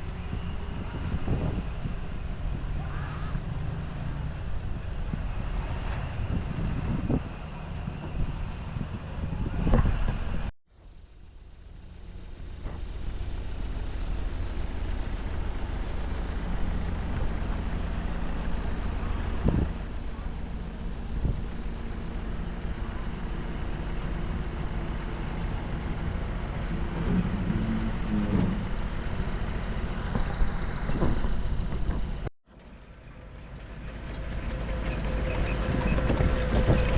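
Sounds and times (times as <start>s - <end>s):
bulldozer diesel engine running: 0.0s - 36.9s
machine knocks and clanks: 30.1s - 32.3s.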